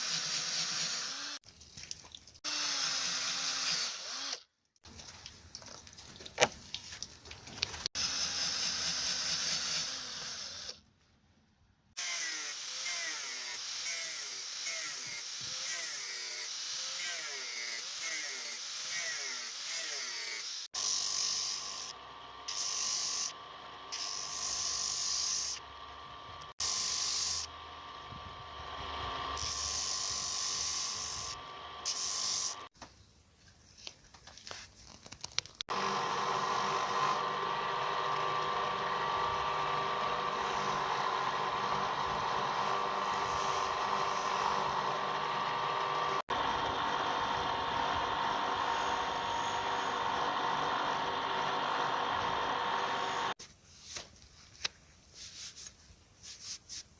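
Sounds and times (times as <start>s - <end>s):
electric tool grinding: 0.0s - 1.4s, 2.4s - 4.5s, 7.8s - 10.8s, 12.0s - 32.7s, 35.7s - 53.4s
motor humming: 35.7s - 53.4s.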